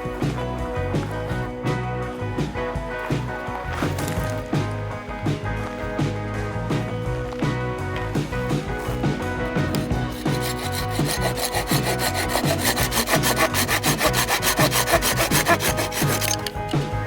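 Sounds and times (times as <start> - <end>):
background music: 0.0 - 17.0
hand saw cutting wood: 9.7 - 16.5.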